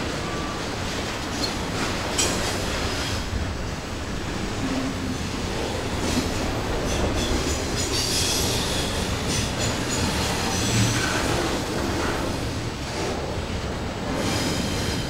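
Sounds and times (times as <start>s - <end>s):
steel wheels rumbling on rail: 0.0s - 15.0s.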